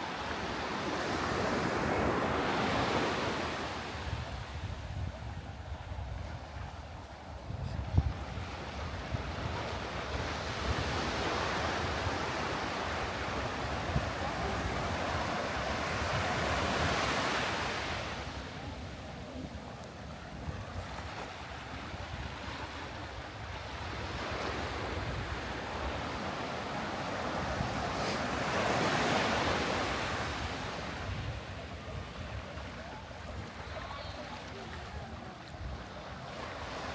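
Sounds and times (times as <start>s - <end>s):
sea waves washing up beach: 8.5s - 21.6s, 23.8s - 36.9s.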